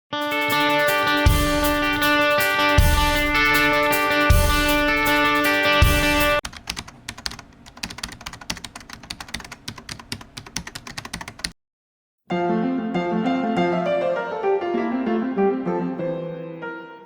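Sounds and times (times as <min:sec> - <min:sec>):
background music: 0:00.2 - 0:06.4, 0:12.3 - 0:17.0
piano music: 0:00.2 - 0:06.4, 0:12.3 - 0:17.0
keyboard typing clicks: 0:06.4 - 0:11.6.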